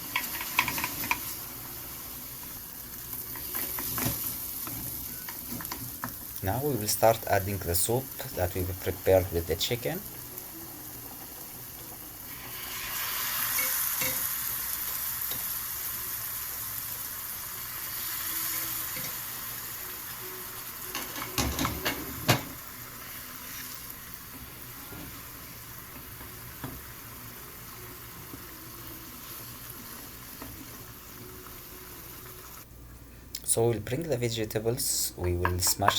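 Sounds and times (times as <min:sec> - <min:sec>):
broth sizzling in hot pot: 0:00.0 - 0:32.7
utensil clanking against pot: 0:00.1 - 0:01.3.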